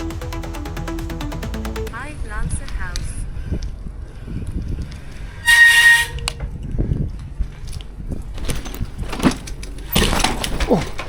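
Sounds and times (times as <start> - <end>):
bike brakes squealing: 5.4 - 6.4
rough scraping noise: 5.4 - 6.4.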